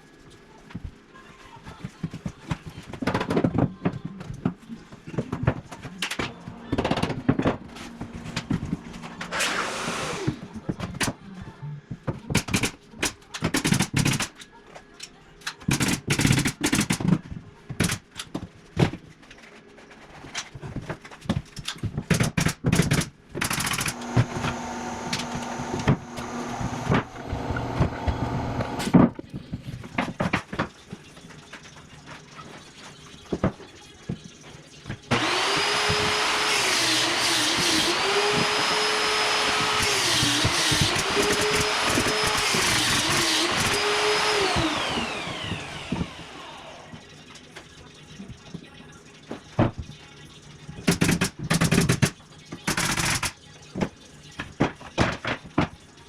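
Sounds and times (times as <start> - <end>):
power tool motor running: 8.0 - 10.4, 23.5 - 28.9, 35.1 - 47.0.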